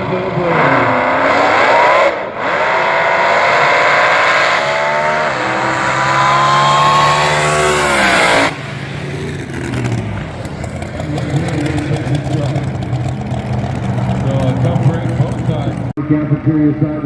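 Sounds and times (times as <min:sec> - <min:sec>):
dragster engines at full throttle: 0:00.0 - 0:17.0
low engine rumble: 0:07.2 - 0:17.0.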